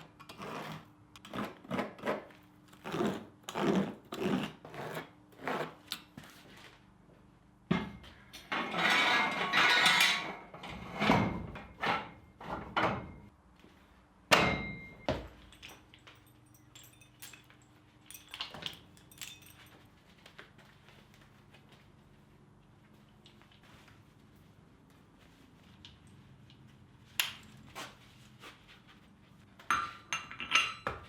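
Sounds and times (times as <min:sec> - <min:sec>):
sharp metallic clang: 0:14.3 - 0:15.2.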